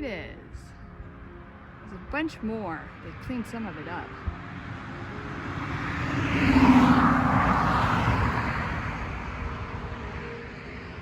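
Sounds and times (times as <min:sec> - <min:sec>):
car driving past: 0:02.8 - 0:11.0.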